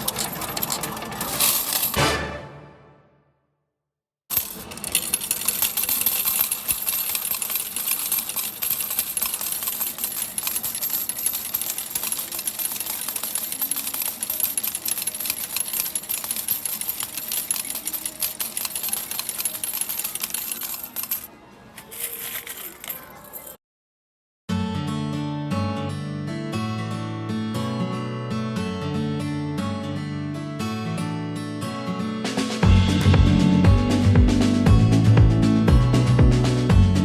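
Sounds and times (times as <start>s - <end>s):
metal medals clattering: 0.0s - 2.0s, 4.3s - 23.6s.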